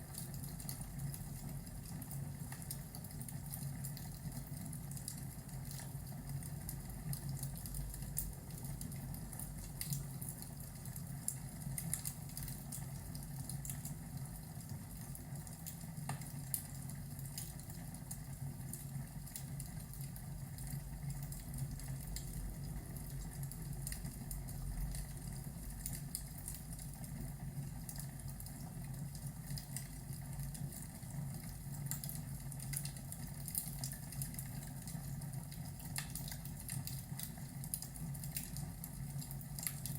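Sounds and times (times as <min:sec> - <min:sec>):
log fire crackling and popping: 0:27.8 - 0:39.9.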